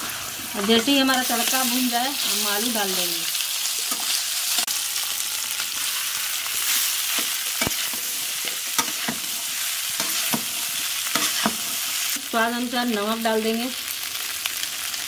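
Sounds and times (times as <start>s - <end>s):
potatoes sizzling in hot oil: 0.0s - 15.0s
metal spatula scraping and tapping pan: 7.1s - 9.3s, 10.0s - 11.7s.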